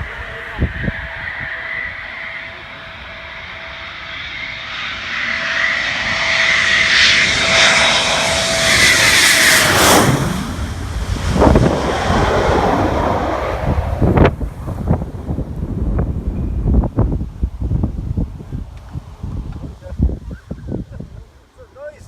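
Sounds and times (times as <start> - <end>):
jet engine passing close by: 0.0 - 17.5.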